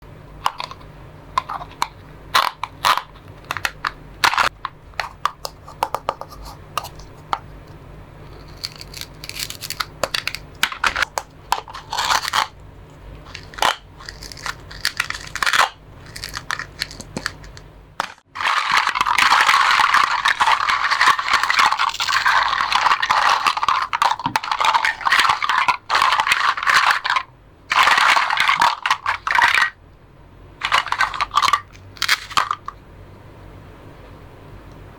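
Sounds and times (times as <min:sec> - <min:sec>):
raspy tearing and crunching: 0:08.3 - 0:11.1, 0:18.3 - 0:27.1.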